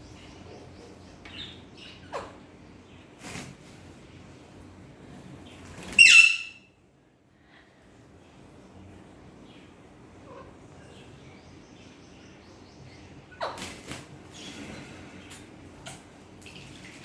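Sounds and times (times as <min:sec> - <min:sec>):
parrot chirping: 0:06.0 - 0:06.6
parrot squawk: 0:06.0 - 0:06.6.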